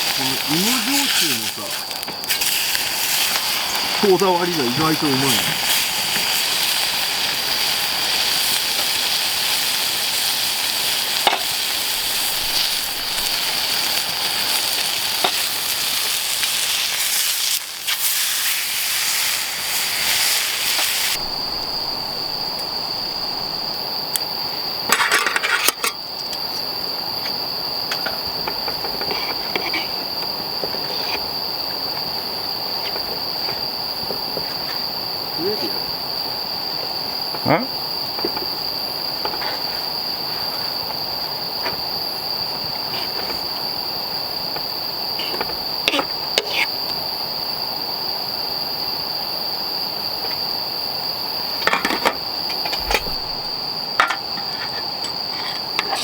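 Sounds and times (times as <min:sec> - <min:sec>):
loud hiss: 0:00.0 - 0:24.4, 0:29.4 - 0:46.8
crickets chirring: 0:00.0 - 0:56.0.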